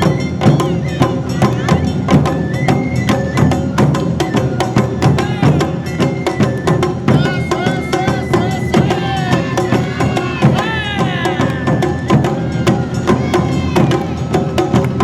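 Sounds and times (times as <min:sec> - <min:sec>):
drums beating: 0:00.0 - 0:15.0
voices calling: 0:04.7 - 0:06.4, 0:07.0 - 0:14.8.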